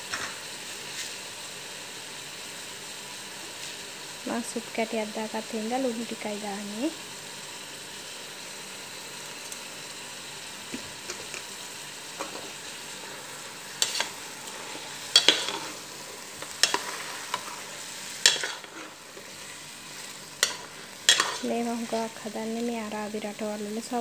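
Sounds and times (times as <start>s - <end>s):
food sizzling in a pot: 0.0s - 24.0s
metal spoon scraping a pot: 13.8s - 14.2s, 15.1s - 15.8s, 16.4s - 17.6s, 18.2s - 19.4s, 20.4s - 21.5s.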